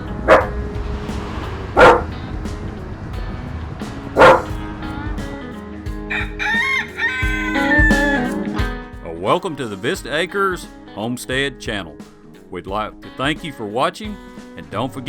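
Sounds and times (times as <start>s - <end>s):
background music: 0.0s - 15.0s
dog barking: 0.3s - 0.6s, 1.8s - 2.1s, 4.2s - 4.5s.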